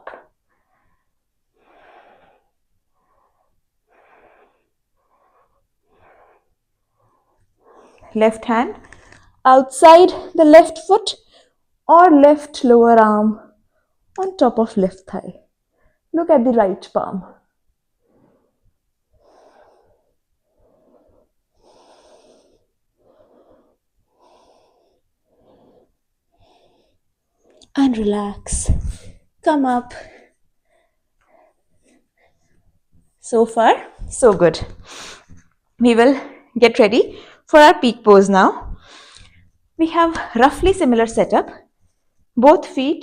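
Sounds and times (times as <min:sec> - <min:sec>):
person breathing: 0:00.5 - 0:08.2, 0:18.0 - 0:27.6, 0:29.9 - 0:32.7, 0:34.7 - 0:35.4, 0:38.7 - 0:39.5.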